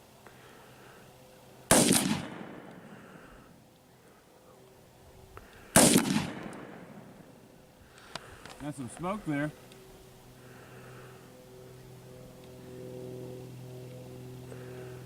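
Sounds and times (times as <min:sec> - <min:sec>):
rifle shots: 0:01.7 - 0:03.0, 0:05.7 - 0:07.4.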